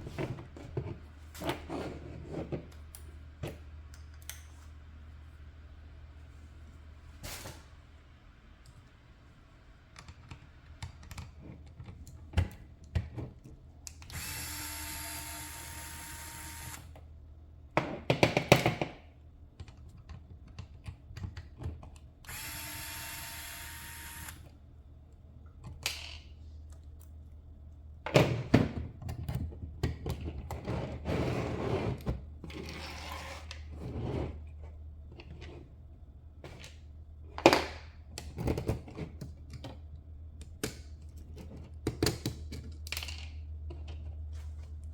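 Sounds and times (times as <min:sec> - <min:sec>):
electric screwdriver running: 0:14.1 - 0:16.9, 0:22.3 - 0:24.4.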